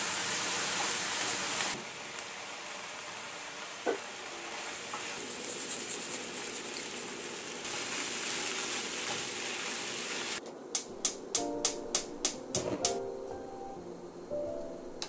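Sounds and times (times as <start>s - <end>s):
vegetables sizzling in frying pan: 0.0s - 10.4s.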